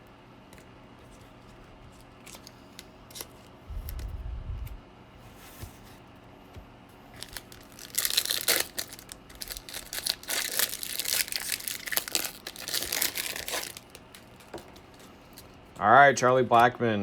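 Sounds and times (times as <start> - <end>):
foil wrapper crinkling and tearing: 1.4 - 4.0, 7.1 - 15.6.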